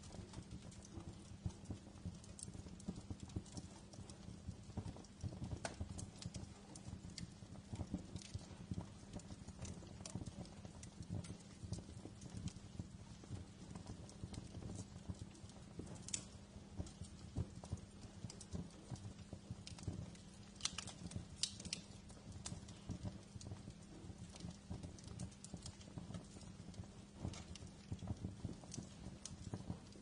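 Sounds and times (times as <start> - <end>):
sharp pops and snaps: 0.0 - 30.0
wood fire crackling: 0.0 - 30.0.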